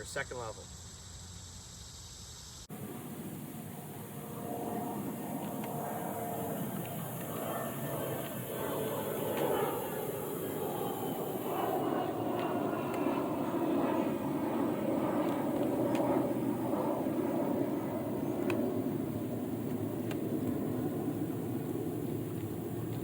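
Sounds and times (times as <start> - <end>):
faint clicks: 18.4 - 18.7, 19.6 - 20.5.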